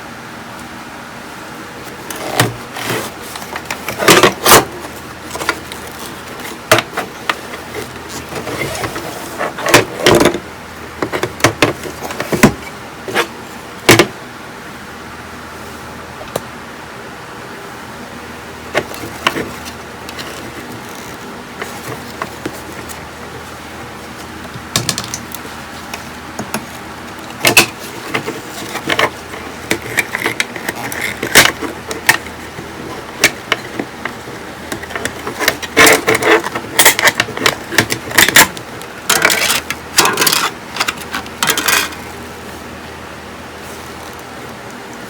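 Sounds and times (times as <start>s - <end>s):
small tools clicking and clattering: 24.5s - 42.0s.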